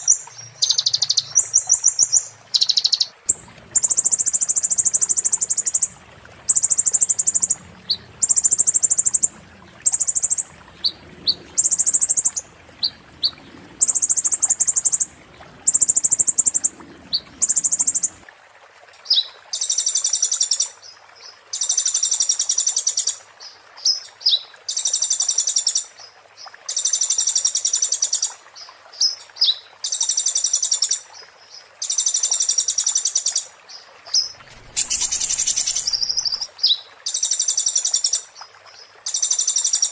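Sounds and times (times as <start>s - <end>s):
songbird high-pitched trills: 0.0s - 3.1s, 34.2s - 37.7s.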